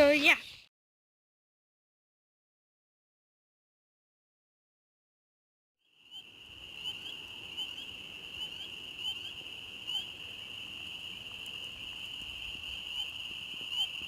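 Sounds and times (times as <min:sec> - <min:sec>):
frog chorus ringing: 0:05.9 - 0:10.8, 0:12.5 - 0:14.0.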